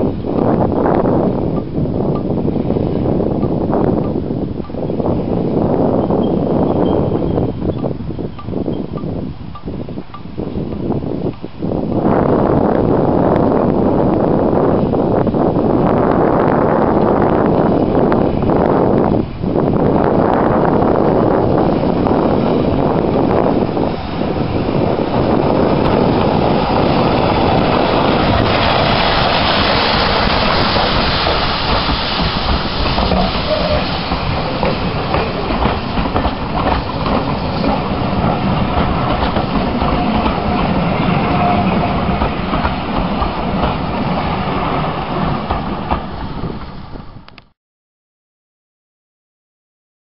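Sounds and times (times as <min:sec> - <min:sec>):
steam train wheels clattering: 0:20.7 - 0:47.2.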